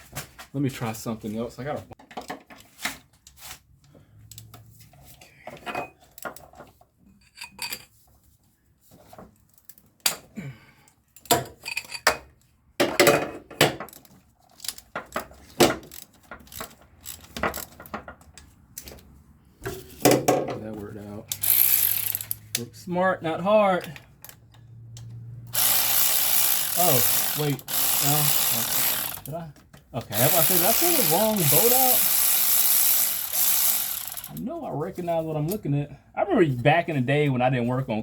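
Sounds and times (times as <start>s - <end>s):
metal hand tools clinking: 30.2s - 34.4s.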